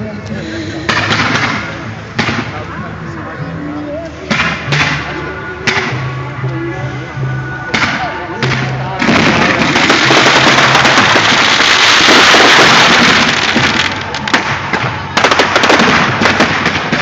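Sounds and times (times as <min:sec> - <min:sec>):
fireworks crackling: 0:00.7 - 0:02.6, 0:07.8 - 0:17.0
fireworks sharp bangs: 0:00.8 - 0:02.6, 0:07.7 - 0:17.0.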